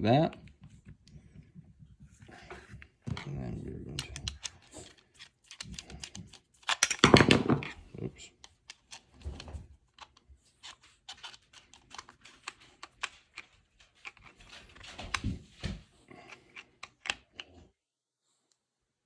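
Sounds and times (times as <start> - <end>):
screwdriver clicking and scraping: 3.9 - 15.4, 16.2 - 17.5.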